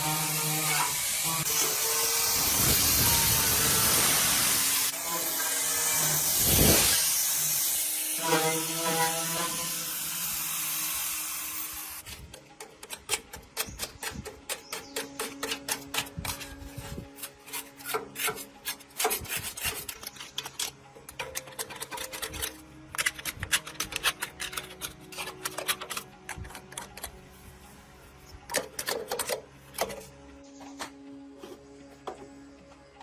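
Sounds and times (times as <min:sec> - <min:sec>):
quiet background music: 0:00.0 - 0:33.0
hand scraping or rasping strokes: 0:12.9 - 0:28.3.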